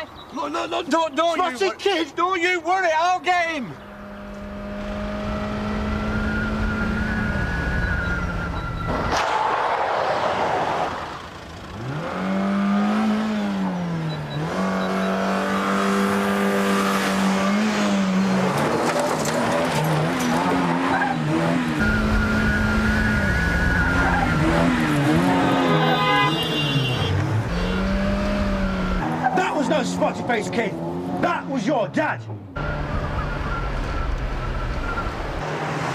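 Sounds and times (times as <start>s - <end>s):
car engine revving hard: 3.9s - 8.4s, 10.7s - 31.5s.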